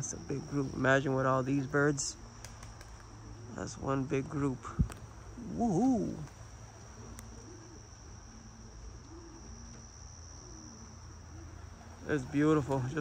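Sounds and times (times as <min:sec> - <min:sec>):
crickets chirring: 0:00.0 - 0:13.0
low background hum: 0:00.0 - 0:13.0.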